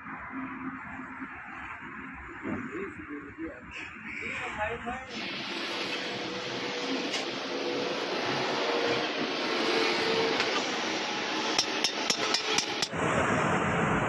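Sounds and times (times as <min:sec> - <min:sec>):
steady hissing: 0:05.1 - 0:12.9
sharp metallic taps: 0:11.6 - 0:12.9.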